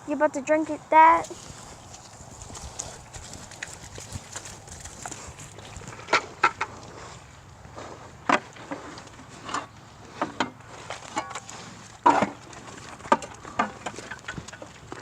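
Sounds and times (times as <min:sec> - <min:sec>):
pigs knocking and clattering: 0:02.3 - 0:06.8, 0:10.2 - 0:15.0.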